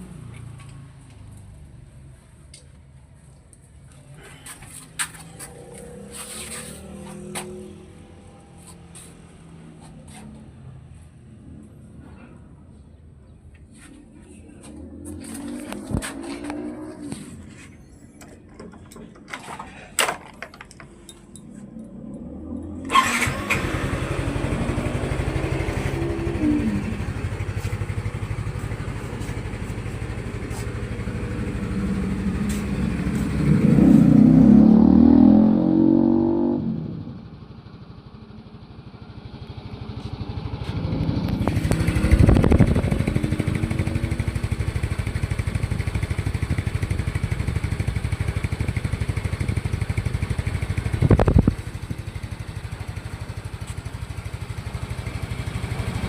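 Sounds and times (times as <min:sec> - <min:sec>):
scooter engine idling and revving: 0:00.0 - 0:56.0.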